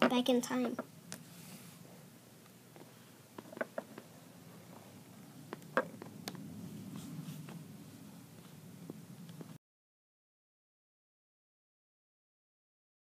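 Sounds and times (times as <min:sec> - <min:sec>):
faint low hum: 0:00.0 - 0:09.6.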